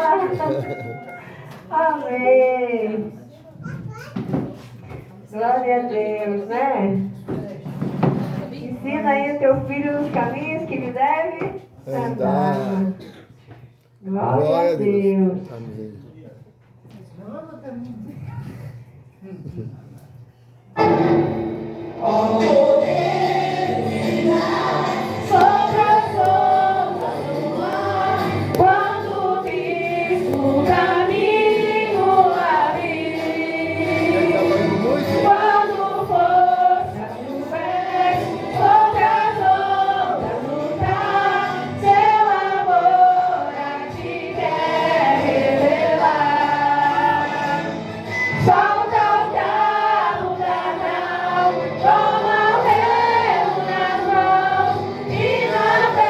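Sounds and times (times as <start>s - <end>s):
youth choir singing gospel: 20.8s - 56.0s.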